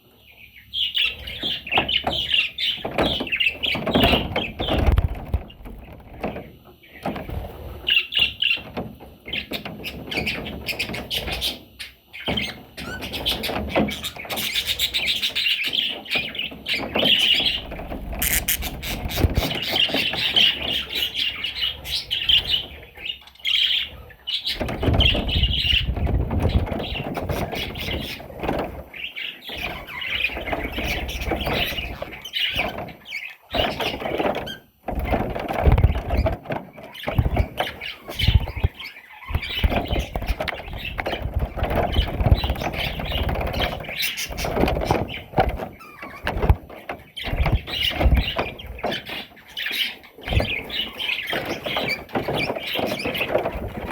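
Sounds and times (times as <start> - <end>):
budgerigar chattering and warbling: 18.2 - 21.4.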